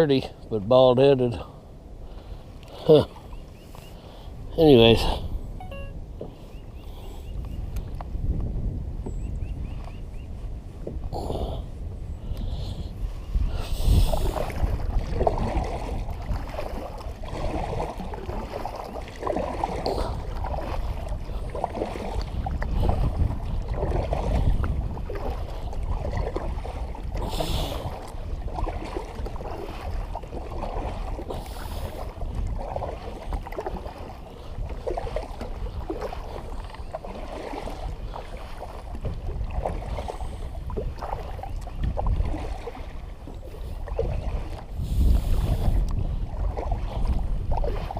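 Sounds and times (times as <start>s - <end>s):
wind buffeting microphone: 3.2s - 47.9s
water slapping against hull: 11.8s - 47.9s.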